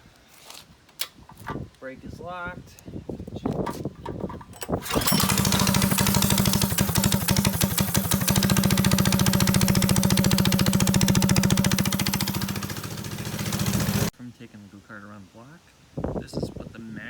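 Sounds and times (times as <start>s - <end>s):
go-kart engine running: 4.8s - 14.1s.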